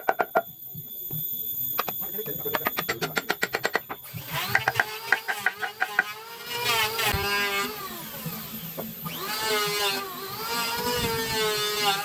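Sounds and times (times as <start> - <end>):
power tool motor whirring: 3.2 - 12.0.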